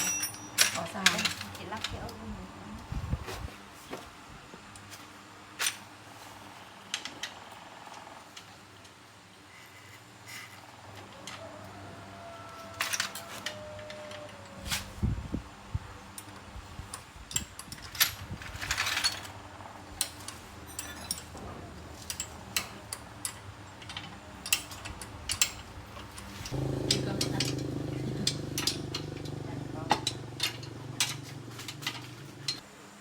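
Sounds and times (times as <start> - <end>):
tools and metal parts clinking: 0.0 - 2.2, 12.5 - 14.9, 16.0 - 32.6.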